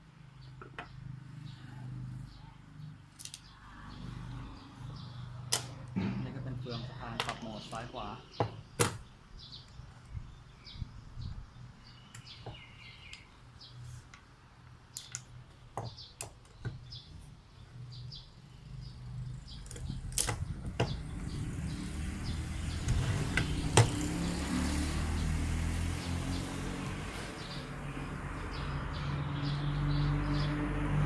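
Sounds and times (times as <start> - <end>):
clicks of small parts handled: 3.2 - 3.4, 14.9 - 15.4.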